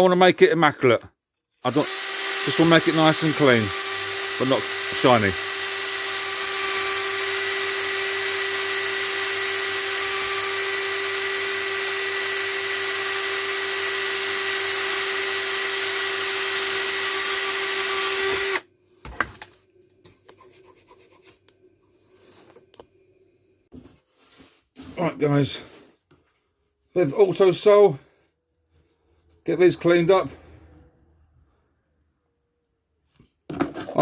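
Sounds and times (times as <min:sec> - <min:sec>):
electric power tool scouring metal: 0:01.7 - 0:18.6.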